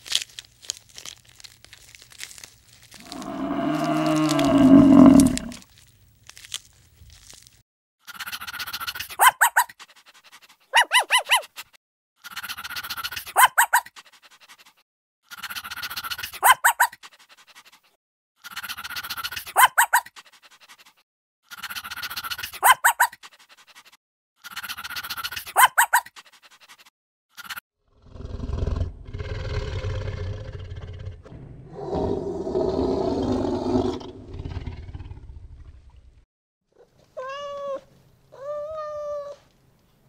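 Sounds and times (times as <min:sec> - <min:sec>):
animal call with rasp and yelps: 0:03.0 - 0:05.6, 0:08.0 - 0:09.8, 0:10.6 - 0:14.1, 0:15.2 - 0:17.1, 0:18.4 - 0:20.3, 0:21.4 - 0:23.4, 0:24.4 - 0:26.3, 0:36.8 - 0:39.5.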